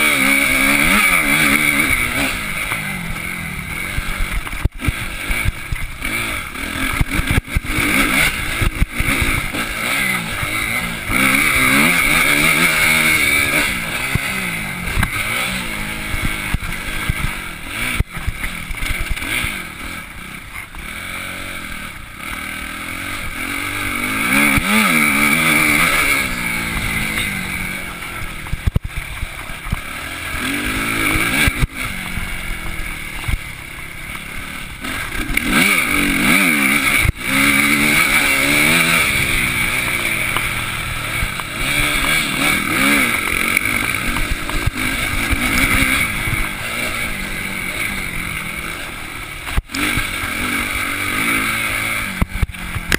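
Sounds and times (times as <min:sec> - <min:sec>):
motocross bike engine revving: 0:00.0 - 0:52.9.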